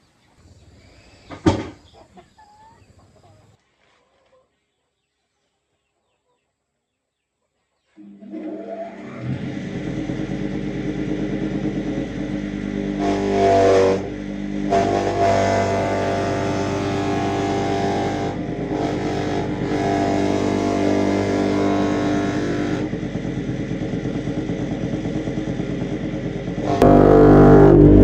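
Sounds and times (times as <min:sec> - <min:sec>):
engine running steadily: 0:09.2 - 0:28.0.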